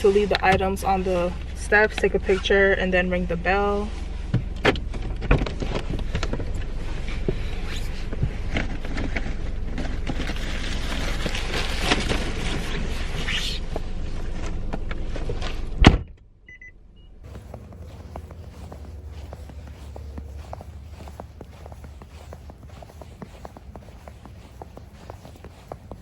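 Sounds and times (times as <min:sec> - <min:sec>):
car engine rumble: 0:17.2 - 0:26.0.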